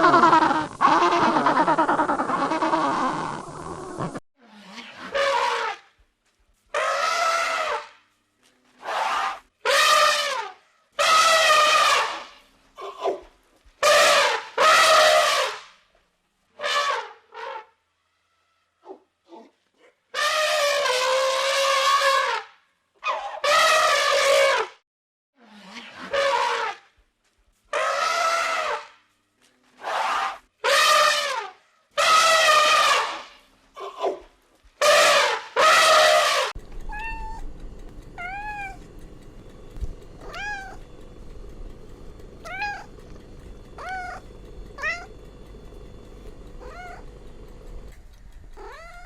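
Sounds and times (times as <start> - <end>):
elephant trumpeting: 0.0 - 4.2, 4.8 - 5.8, 6.8 - 8.0, 8.8 - 13.1, 13.8 - 15.6, 20.2 - 22.4, 25.8 - 26.8, 27.7 - 28.8, 29.8 - 34.2, 34.8 - 37.2.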